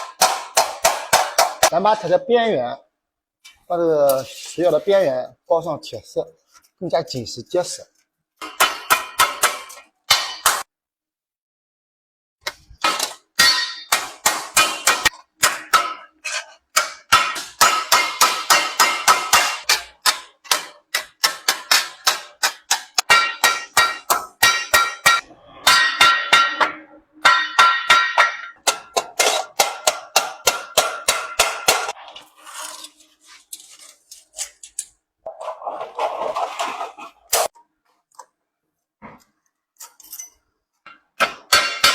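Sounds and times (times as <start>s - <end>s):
hammer striking sheet metal: 0.0s - 1.8s, 8.4s - 10.7s, 12.8s - 32.0s, 41.2s - 41.9s.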